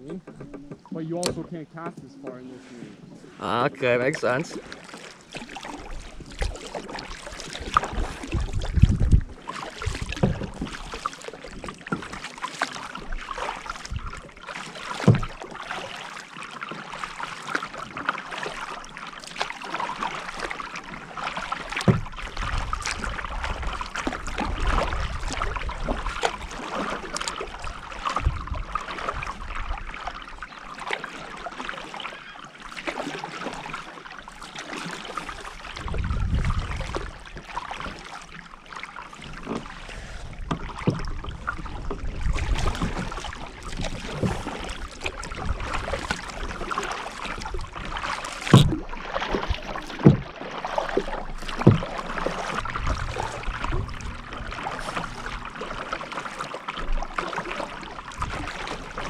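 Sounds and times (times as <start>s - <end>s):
water splashing and lapping: 0.0s - 59.0s
knocks against boat: 0.1s - 2.4s, 15.0s - 15.4s, 21.8s - 22.2s, 40.4s - 41.2s, 48.4s - 50.4s, 51.4s - 55.5s.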